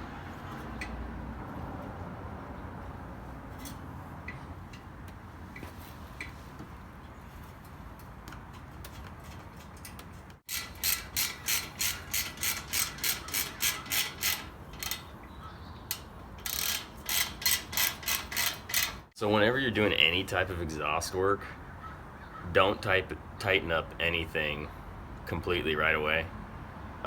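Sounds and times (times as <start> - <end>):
socket ratchet clicking: 10.5 - 15.1, 15.9 - 19.1.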